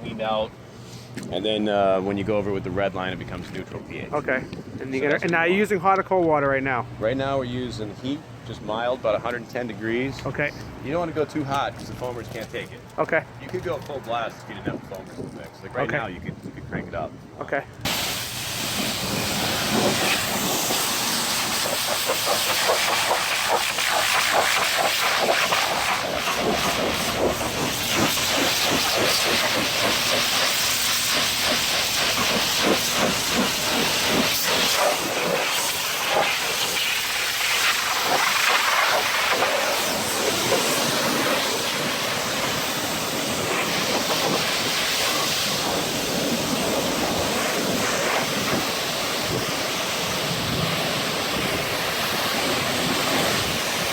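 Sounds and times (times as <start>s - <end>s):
pressure washer spraying: 17.9s - 53.9s.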